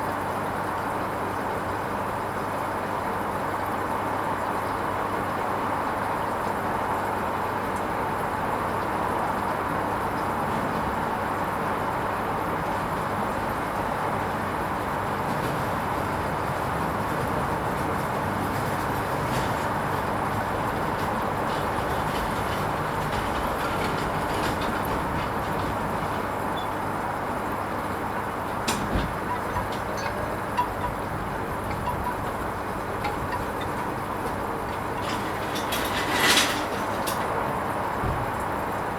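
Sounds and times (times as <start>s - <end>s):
washing machine running: 0.1s - 38.9s.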